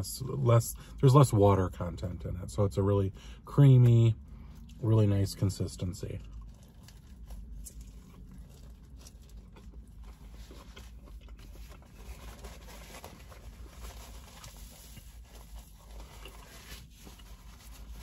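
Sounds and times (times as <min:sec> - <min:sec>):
low steady hum: 0:00.0 - 0:18.0
person chewing: 0:06.2 - 0:18.0.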